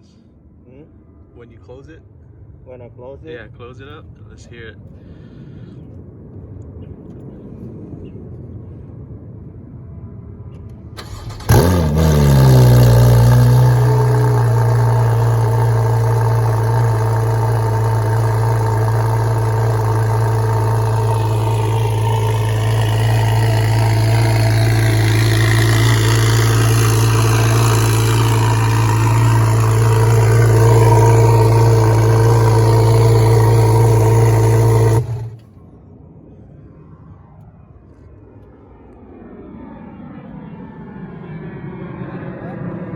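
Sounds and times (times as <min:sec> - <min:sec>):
car engine starting and idling: 0:11.0 - 0:35.5.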